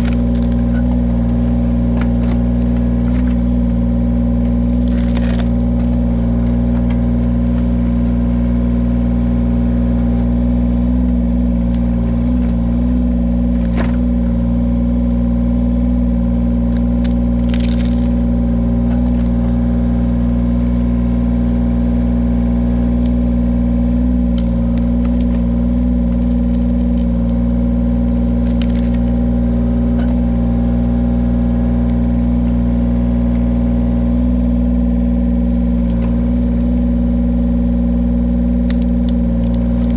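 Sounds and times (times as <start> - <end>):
wood cracks and knocks: 0.0 - 7.8, 11.6 - 14.4, 16.3 - 19.7, 22.8 - 30.5, 37.4 - 39.9
machine engine running: 0.0 - 39.9.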